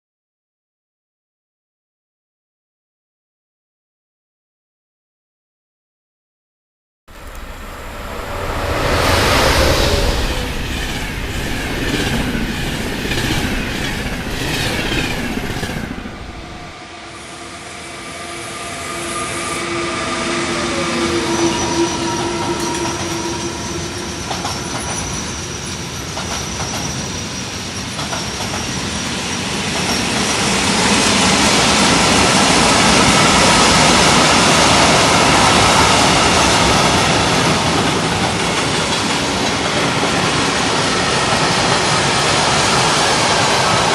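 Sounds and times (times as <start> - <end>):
train whining tones: 7.1 - 43.9
train wheels clickety-clack: 7.2 - 16.7, 22.4 - 43.9
train wheels squealing: 7.2 - 43.9.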